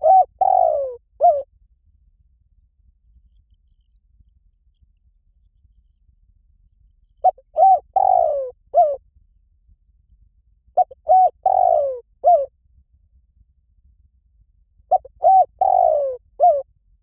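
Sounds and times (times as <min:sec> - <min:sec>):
dove cooing: 0:00.0 - 0:01.4, 0:07.2 - 0:09.0, 0:10.8 - 0:12.5, 0:14.9 - 0:16.6.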